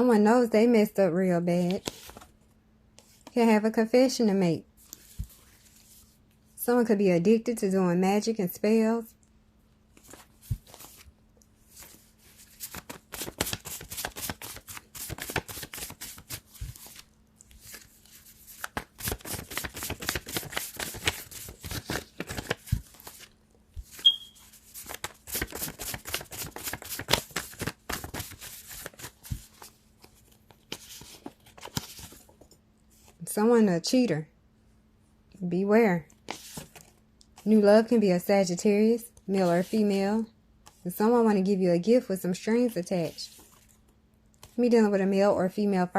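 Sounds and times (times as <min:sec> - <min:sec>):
cards being shuffled: 0:01.7 - 0:02.3, 0:09.9 - 0:11.1, 0:11.7 - 0:32.4, 0:36.2 - 0:37.4
high chirp: 0:24.0 - 0:24.4.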